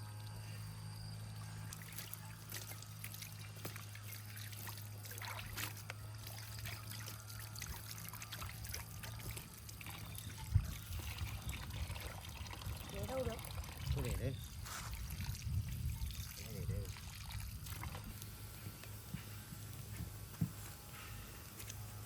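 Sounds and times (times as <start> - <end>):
steady low hum: 0.0 - 22.0
water trickling: 1.4 - 18.5.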